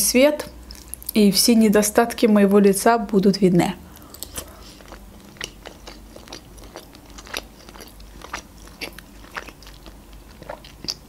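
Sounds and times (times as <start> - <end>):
wet chewing mouth clicks: 4.0 - 11.0.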